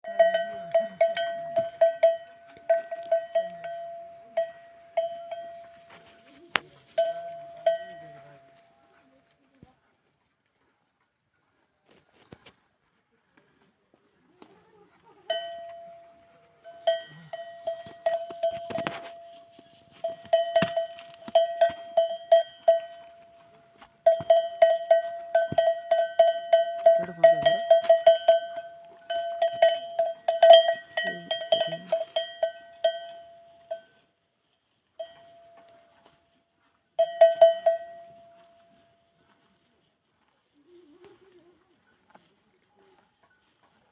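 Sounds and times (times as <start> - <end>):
camel bell clanking: 0.0 - 9.0, 15.2 - 34.2, 35.0 - 36.4, 37.0 - 39.4, 43.2 - 43.6.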